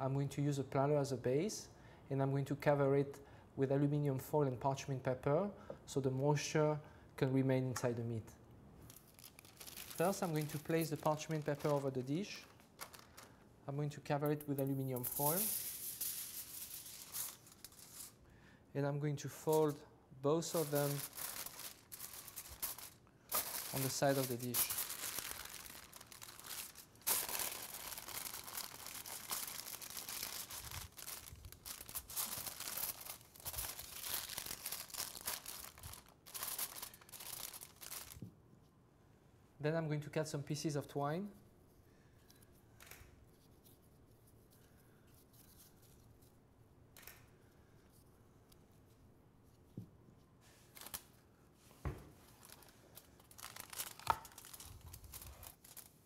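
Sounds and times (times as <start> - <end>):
foil and paper crinkling: 8.9 - 13.4, 15.0 - 18.2, 20.5 - 38.2, 52.4 - 56.0.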